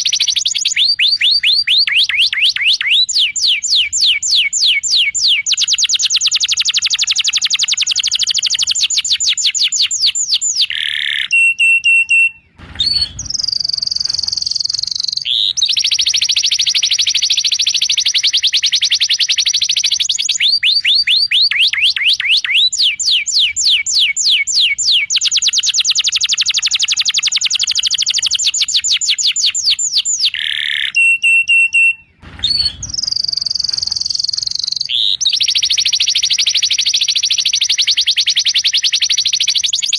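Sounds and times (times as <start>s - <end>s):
canary whistled notes: 9.9s - 39.9s
canary trilling: 10.4s - 18.6s, 30.2s - 37.4s
low thump: 12.6s - 15.2s, 32.2s - 34.8s.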